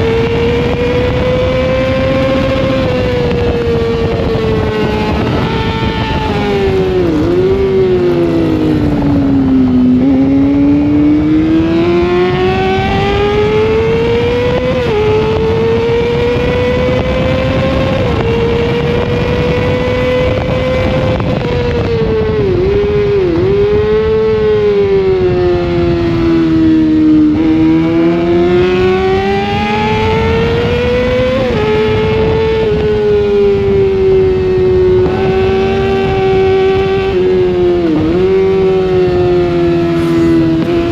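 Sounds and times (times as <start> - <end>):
motorcycle engine revving: 39.7 - 40.9
wind rush: 39.8 - 40.9.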